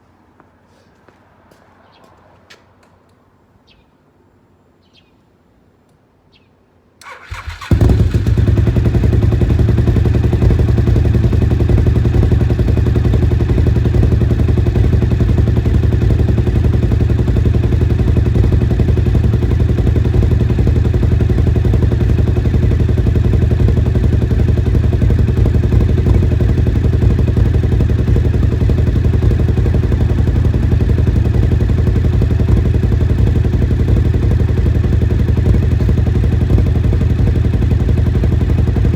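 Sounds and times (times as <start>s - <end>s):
motorcycle engine idling: 7.0s - 38.9s.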